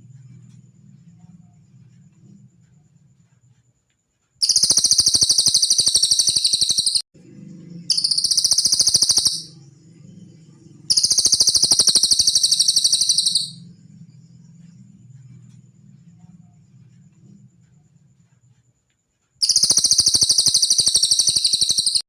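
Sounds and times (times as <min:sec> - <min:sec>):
faint low hum: 0:00.0 - 0:04.6, 0:07.2 - 0:20.0
bird trilling: 0:04.4 - 0:07.0, 0:07.9 - 0:09.6, 0:10.9 - 0:13.6, 0:19.4 - 0:22.0.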